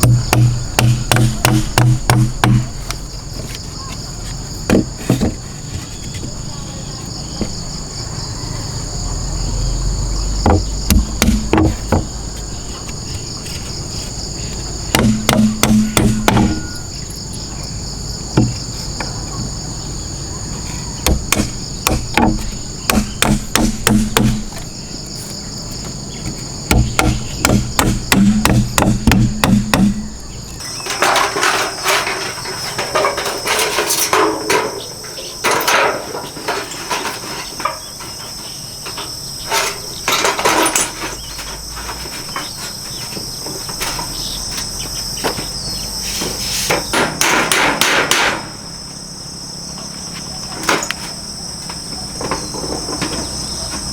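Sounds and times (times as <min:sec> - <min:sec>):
hammer blows on wood: 0:00.0 - 0:02.8, 0:14.9 - 0:16.9, 0:21.0 - 0:24.6, 0:26.7 - 0:30.2
irregular knocks: 0:00.0 - 0:03.6, 0:04.6 - 0:06.4, 0:10.4 - 0:13.2, 0:14.8 - 0:17.0, 0:18.3 - 0:19.2, 0:21.0 - 0:24.8, 0:25.8 - 0:30.4
insects chorus: 0:00.0 - 0:53.9.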